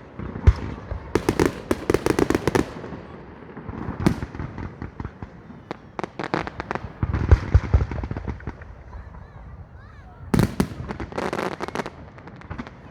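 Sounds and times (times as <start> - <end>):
firework crackling bursts: 0.0 - 12.9
firework bang: 3.6 - 9.6, 10.3 - 11.9.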